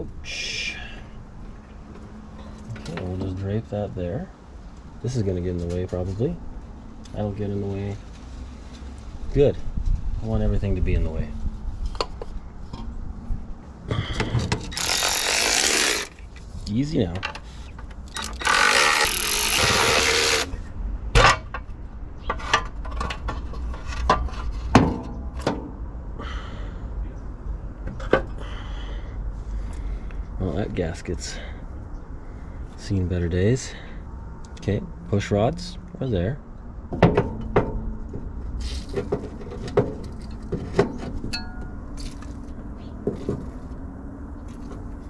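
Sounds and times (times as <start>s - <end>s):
low steady hum: 0.0s - 45.0s
metal knocks and clunks: 36.9s - 38.3s
clinks of hand tools and parts: 38.7s - 42.4s.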